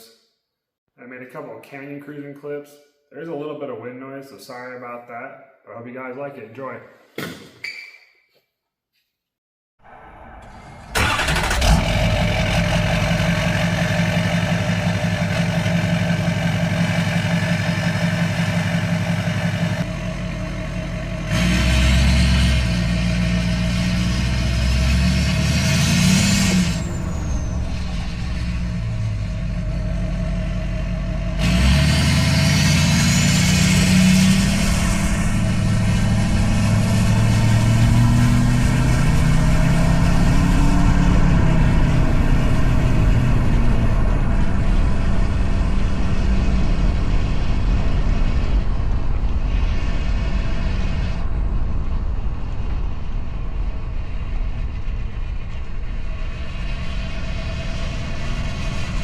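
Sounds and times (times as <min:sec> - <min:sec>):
diesel engine revving: 0:09.8 - 0:51.2, 0:55.8 - 0:59.0.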